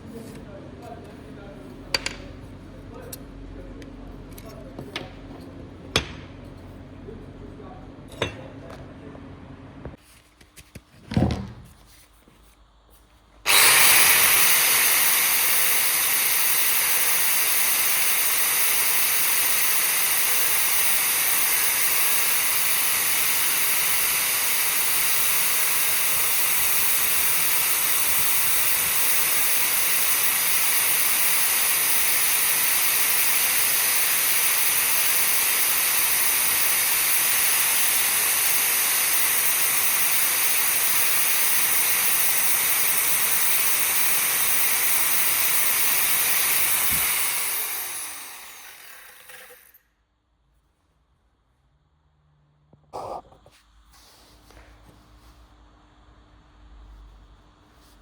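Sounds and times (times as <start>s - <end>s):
power tool running: 13.5s - 49.8s.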